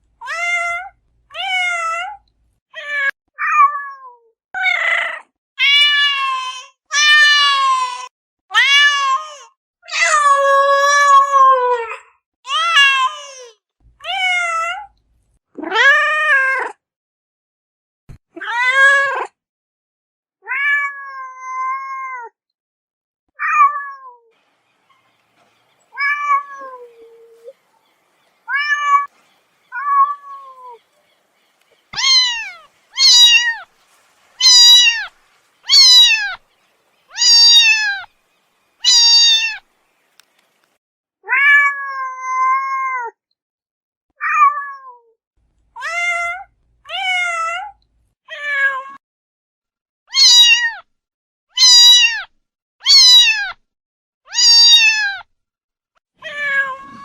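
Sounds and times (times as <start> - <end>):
cat meowing: 20.4 - 22.2, 25.9 - 27.6, 28.4 - 29.1, 29.7 - 30.8, 31.9 - 33.7, 34.4 - 36.4, 37.1 - 38.1, 38.8 - 39.6, 41.3 - 43.0, 50.1 - 50.8, 51.6 - 53.6, 54.3 - 55.2, 56.2 - 57.0.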